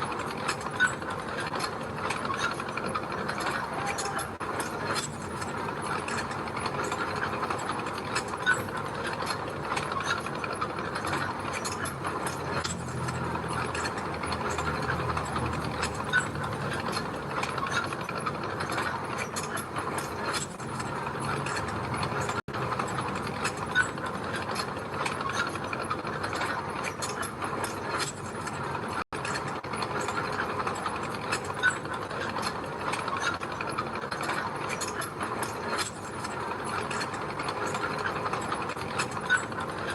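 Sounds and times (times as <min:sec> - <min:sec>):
crawler tracks clanking: 0:00.0 - 0:39.9.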